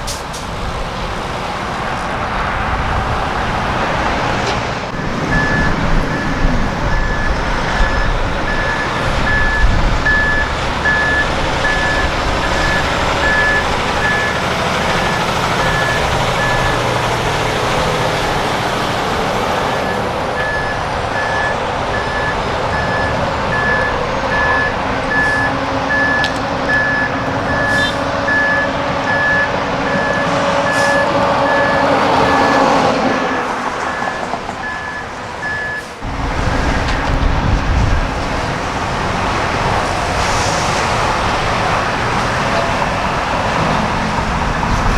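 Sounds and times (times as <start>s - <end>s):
truck engines running: 0.0s - 44.9s
vehicle backup alarm beeping: 4.9s - 44.9s.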